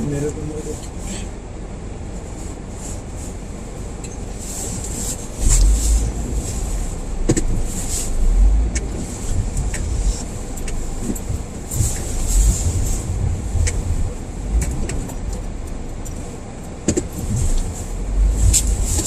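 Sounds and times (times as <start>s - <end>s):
car engine and tyre rumble: 0.0s - 19.0s
crunching clicks of snow: 4.0s - 16.2s, 16.9s - 19.0s
heavy low thumps: 5.4s - 15.9s, 17.3s - 18.9s.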